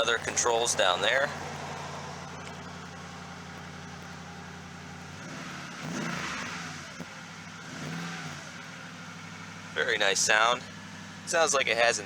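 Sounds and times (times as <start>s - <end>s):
pickup engine idling and revving: 0.0s - 12.0s.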